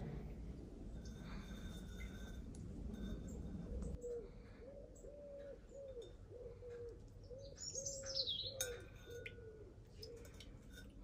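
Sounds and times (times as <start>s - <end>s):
bird cooing: 3.7s - 10.4s
high falling bird chirp: 7.3s - 9.2s.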